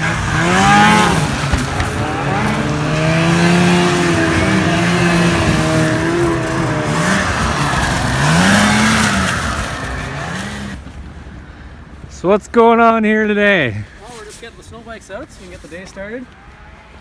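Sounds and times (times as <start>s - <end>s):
snow bike engine revving: 0.0s - 10.8s.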